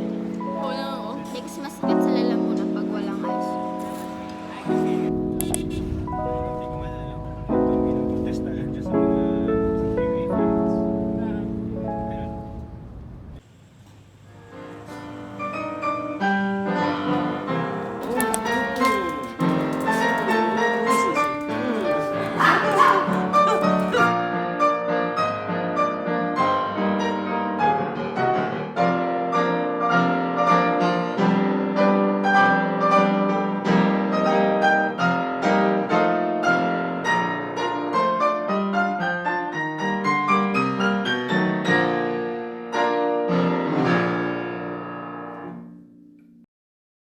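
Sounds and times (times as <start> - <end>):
solo piano music: 0.0 - 13.4.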